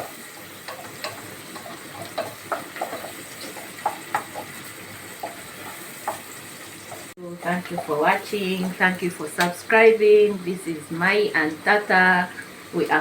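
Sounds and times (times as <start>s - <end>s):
oil popping and crackling: 0.0s - 8.8s
onions sizzling in hot oil: 0.0s - 13.0s.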